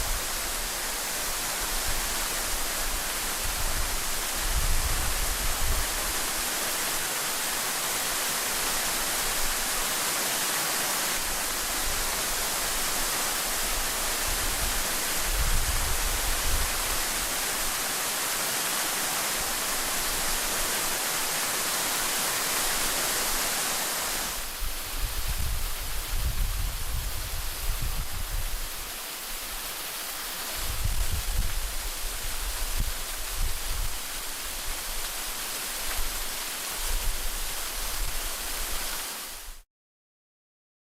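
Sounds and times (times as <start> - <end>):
waterfall rushing: 0.0 - 39.6
wind buffeting microphone: 1.6 - 6.2, 14.2 - 17.1, 24.6 - 28.8, 30.6 - 34.0.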